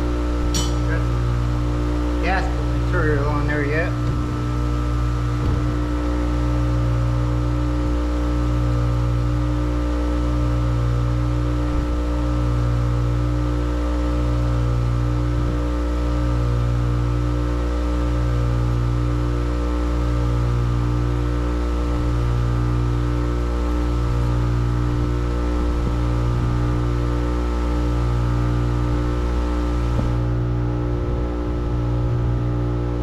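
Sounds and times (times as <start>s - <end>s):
low throbbing: 0.0s - 33.0s
steady machine hum: 0.0s - 33.0s.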